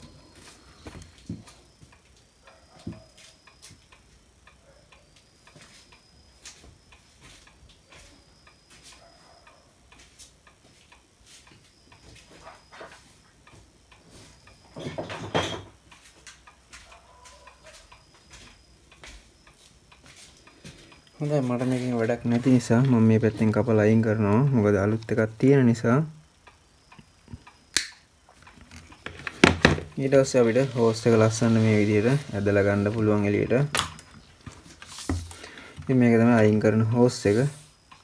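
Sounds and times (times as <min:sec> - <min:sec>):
scraping and handling: 0:28.4 - 0:37.6.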